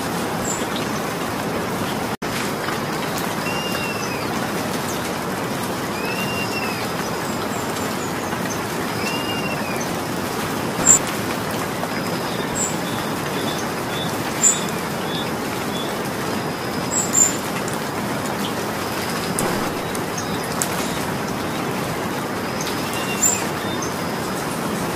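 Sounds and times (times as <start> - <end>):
steady rain falling: 0.0 - 24.9
bird chirping faintly: 19.0 - 21.6.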